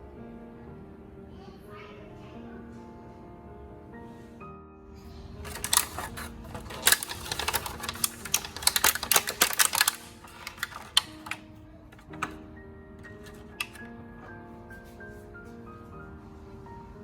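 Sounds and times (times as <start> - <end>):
soft background music: 0.0 - 17.0
crisp clicks and taps of food preparation: 5.5 - 12.4, 13.0 - 13.9.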